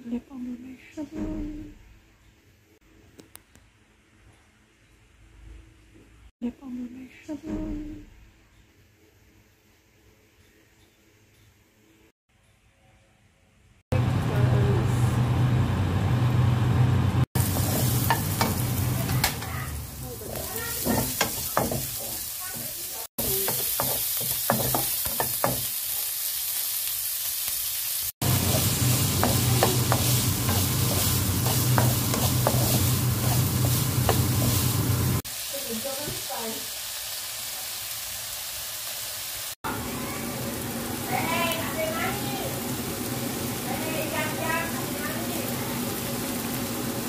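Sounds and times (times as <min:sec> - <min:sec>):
food sizzling in a frying pan: 0:15.2 - 0:47.0
spatula tapping against a pan: 0:23.2 - 0:25.7.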